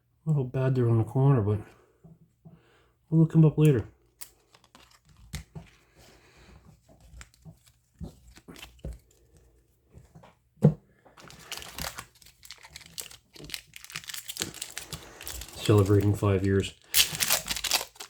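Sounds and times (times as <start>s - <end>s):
card-pack wrapper tearing: 4.2s - 5.5s, 11.2s - 18.0s.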